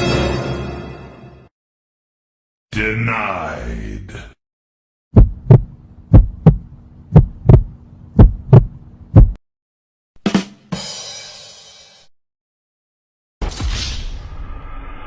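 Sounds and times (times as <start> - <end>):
heartbeat thumps: 5.1 - 9.4.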